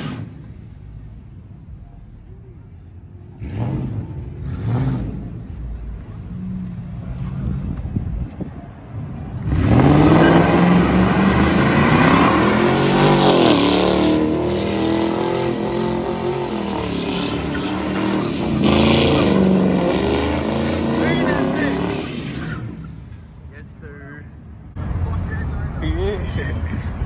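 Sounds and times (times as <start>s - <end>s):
car engine revving hard: 0.0s - 0.5s, 3.3s - 5.6s, 9.3s - 23.0s.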